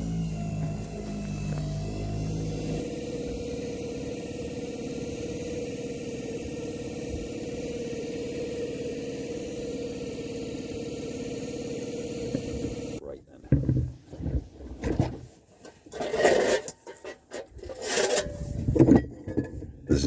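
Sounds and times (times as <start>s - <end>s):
small outboard motor running: 0.0s - 13.0s.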